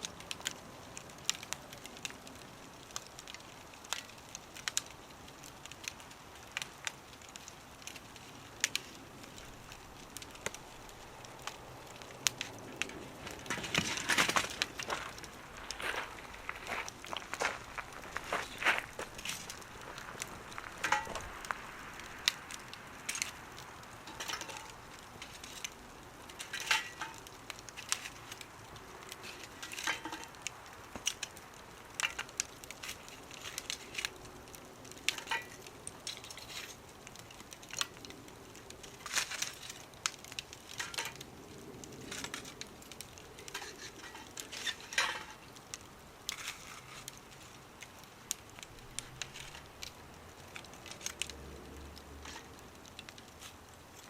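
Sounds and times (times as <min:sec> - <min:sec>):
burning firewood crackling: 0:00.0 - 0:54.0
faint hiss: 0:14.4 - 0:31.7.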